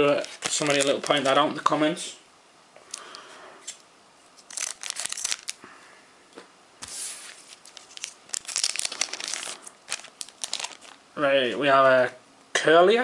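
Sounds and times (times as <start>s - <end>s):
foil wrapper crinkling: 0.0s - 1.4s, 4.4s - 5.6s, 7.1s - 11.0s
wrapper ripping: 0.0s - 1.4s, 4.4s - 5.6s, 7.1s - 11.0s.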